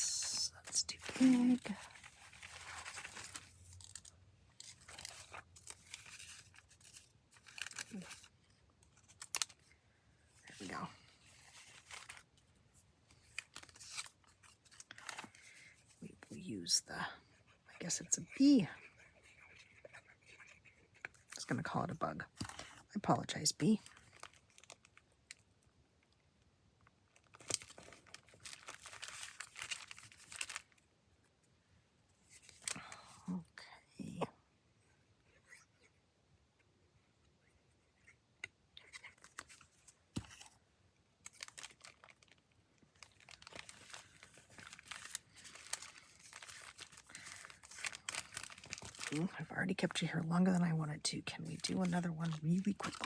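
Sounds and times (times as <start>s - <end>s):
paper rustling: 0.3s - 8.3s, 43.0s - 49.3s, 51.5s - 53.0s.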